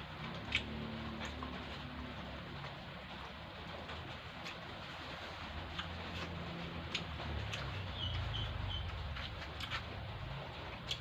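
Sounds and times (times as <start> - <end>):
chewing: 0.2 - 3.4, 4.4 - 8.3, 9.1 - 10.0, 10.7 - 11.0.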